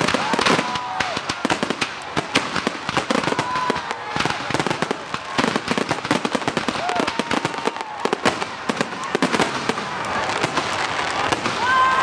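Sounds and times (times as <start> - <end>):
firework bursts and crackling: 0.0 - 12.0.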